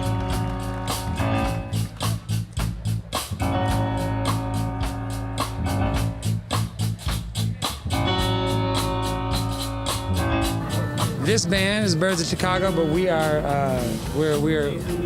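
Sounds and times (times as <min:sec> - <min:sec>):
percussive beat: 0:00.0 - 0:15.0
sustained bass notes: 0:00.0 - 0:15.0
strummed guitar: 0:07.8 - 0:15.0.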